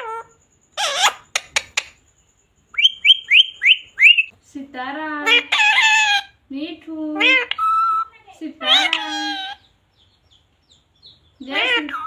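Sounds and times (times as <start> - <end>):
parrot squawking and chirping: 0.0 - 2.0, 2.7 - 4.3, 5.2 - 6.5, 7.1 - 12.0
parrot clicks: 1.3 - 2.0.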